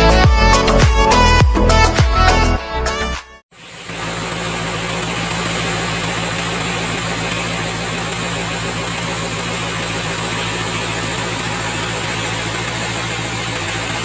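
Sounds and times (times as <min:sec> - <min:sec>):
diesel engine idling: 0:03.5 - 0:14.0.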